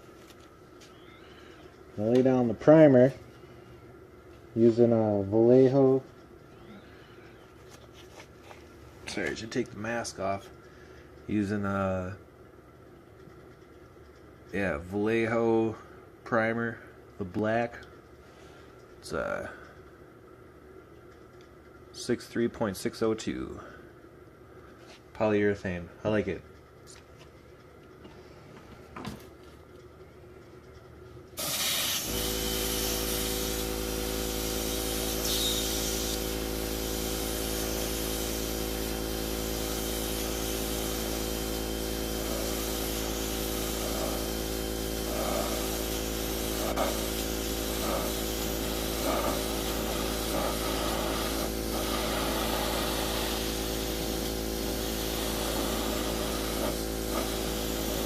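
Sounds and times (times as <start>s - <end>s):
compressor humming: 0.0s - 58.0s
airbrush spraying hiss: 31.4s - 58.0s.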